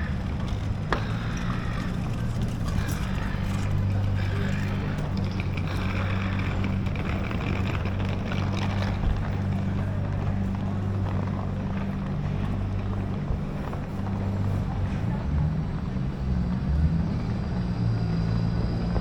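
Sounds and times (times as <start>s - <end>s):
traffic noise: 0.0s - 19.0s
vehicle engine running: 0.0s - 19.0s.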